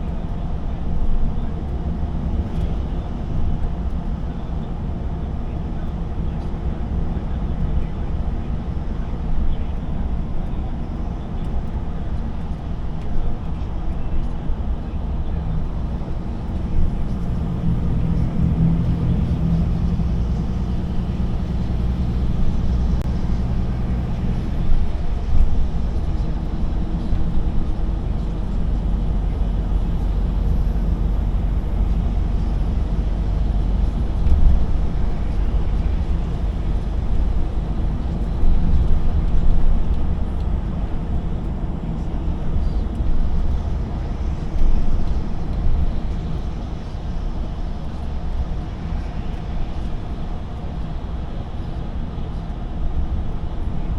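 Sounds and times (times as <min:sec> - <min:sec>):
truck diesel engine drone: 0:00.0 - 0:53.9
tyre and road rumble: 0:10.4 - 0:51.5.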